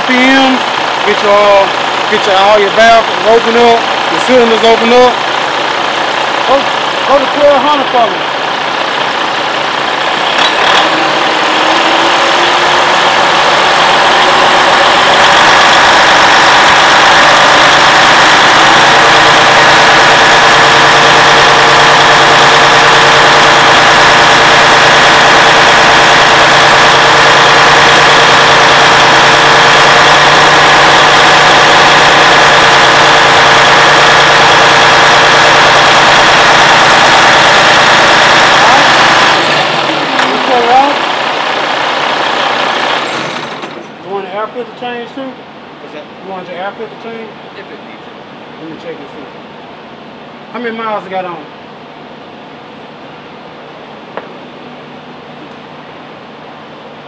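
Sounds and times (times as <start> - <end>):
truck diesel engine revving: 0.0 - 45.3.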